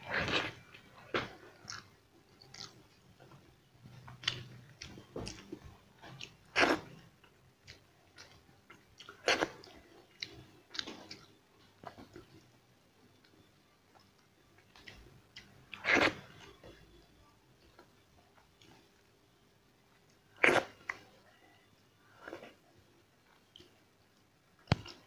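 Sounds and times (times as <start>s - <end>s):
person chewing wet smacks: 4.1s - 6.8s.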